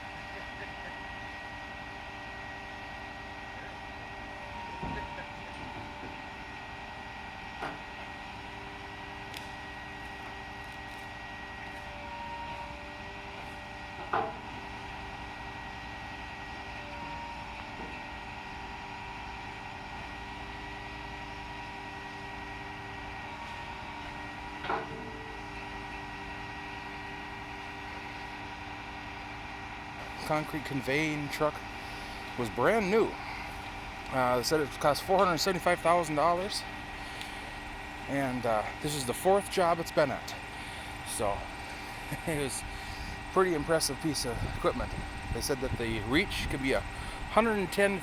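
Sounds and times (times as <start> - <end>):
machinery droning hum: 0.0 - 48.0.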